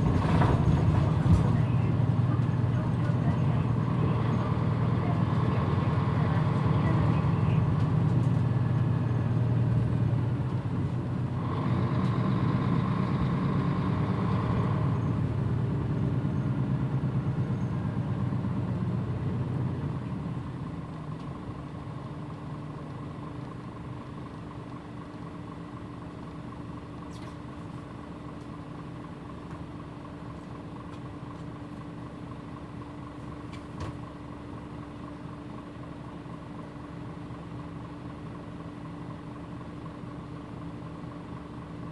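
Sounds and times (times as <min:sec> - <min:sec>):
bus diesel engine running: 0:00.0 - 0:41.9.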